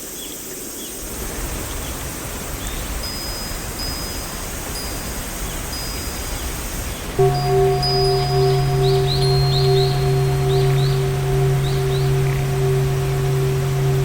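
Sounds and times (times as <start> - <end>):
birds chirping: 7.2 - 14.0
thin high tone: 7.2 - 14.0.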